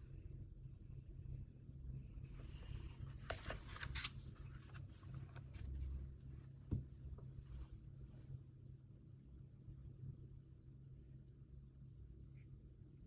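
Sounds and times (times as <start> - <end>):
paper rustling: 2.3 - 7.8.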